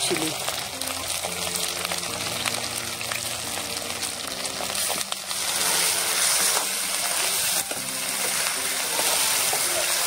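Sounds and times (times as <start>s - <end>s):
meat sizzling in a wok: 0.0s - 10.0s
metal spoon stirring a pan: 4.8s - 10.0s.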